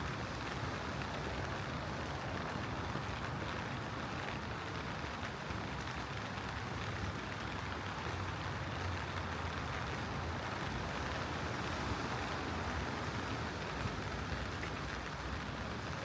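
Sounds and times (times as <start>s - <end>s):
rain falling on street: 0.0s - 16.0s.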